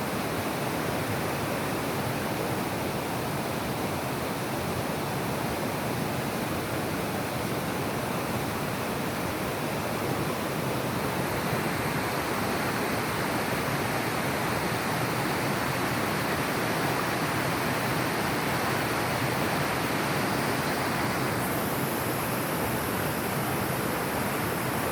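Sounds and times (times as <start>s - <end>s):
running water rushing: 0.0s - 24.9s.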